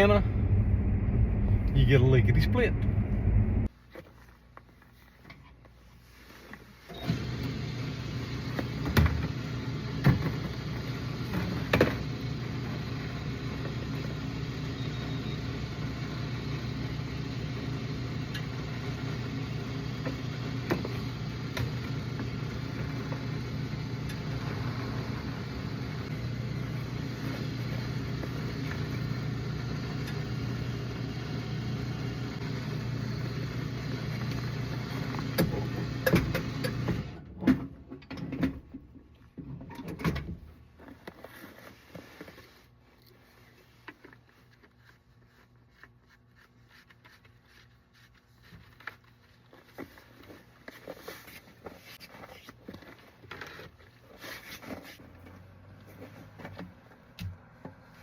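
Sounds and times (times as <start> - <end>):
truck engine and road drone: 0.0 - 3.7, 7.0 - 37.6, 54.7 - 58.0.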